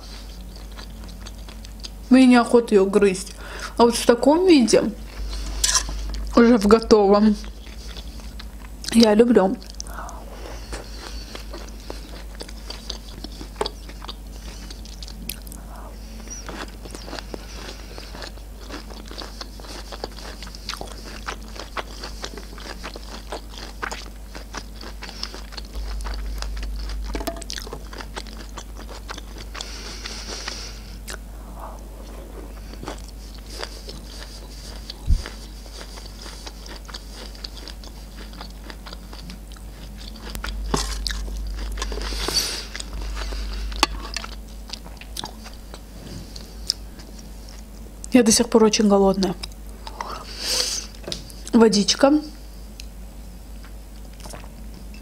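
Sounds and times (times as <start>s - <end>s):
chewing with wet mouth clicks: 0.3s - 2.0s, 7.4s - 15.6s, 16.2s - 29.8s, 31.0s - 31.2s, 32.8s - 45.8s, 46.4s - 47.9s, 53.6s - 54.5s
metal spoon scraping tray: 5.5s - 6.0s.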